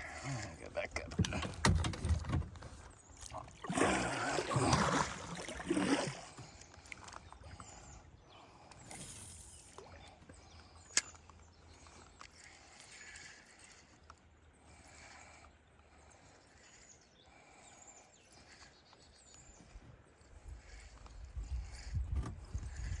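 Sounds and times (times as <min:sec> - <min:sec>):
water and hull noises: 0:00.0 - 0:08.8
paddle splashing in water: 0:01.6 - 0:07.0.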